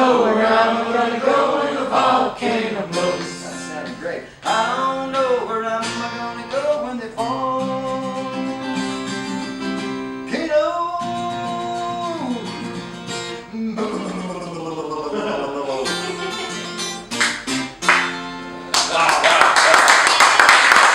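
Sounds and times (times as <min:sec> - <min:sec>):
person singing: 0:00.0 - 0:09.3, 0:10.3 - 0:12.8, 0:13.5 - 0:17.0
acoustic guitar strumming: 0:00.0 - 0:19.0.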